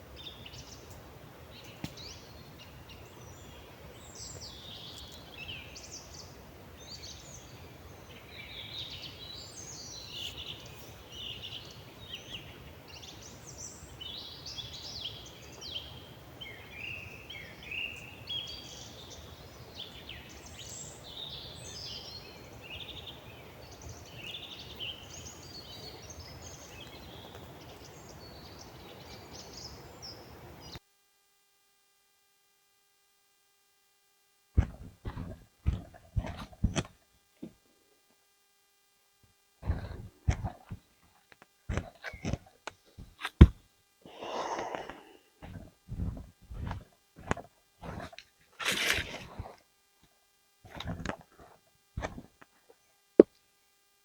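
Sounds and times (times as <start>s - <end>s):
songbirds singing: 0.0s - 30.8s, 34.6s - 36.9s, 39.6s - 49.6s
faint steady hum: 0.0s - 54.0s.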